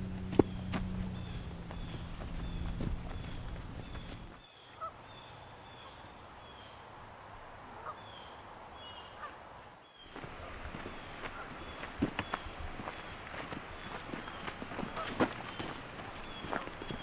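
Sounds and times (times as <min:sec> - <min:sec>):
low steady hum: 0:00.0 - 0:04.4
honk-like bird calls: 0:13.9 - 0:16.7.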